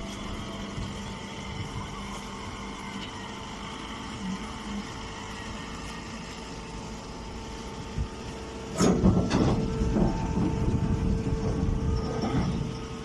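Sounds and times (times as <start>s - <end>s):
baler machine humming: 0.0s - 13.0s
mechanical clattering and knocking: 8.7s - 13.0s.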